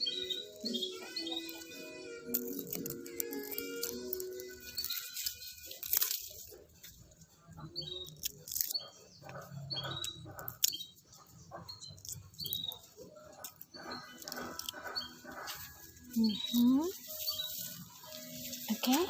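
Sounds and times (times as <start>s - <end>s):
small bird chirping: 0.0s - 19.0s
rustling and clicks: 2.3s - 7.2s.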